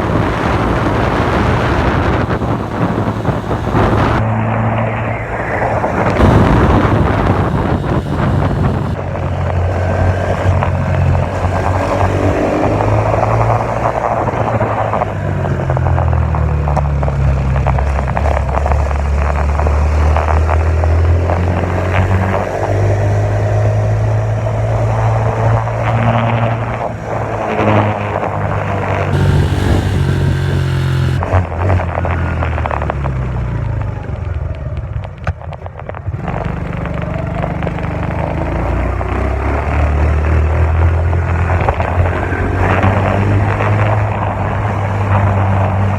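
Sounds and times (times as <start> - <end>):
dirt bike engine revving: 0.0 - 4.2, 5.9 - 9.1, 29.1 - 31.5.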